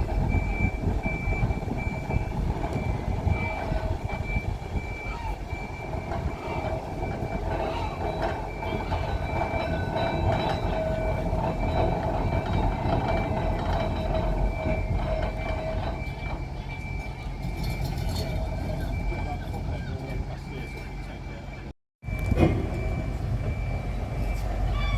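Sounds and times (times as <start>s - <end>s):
tram wheels rumbling: 0.0s - 24.9s.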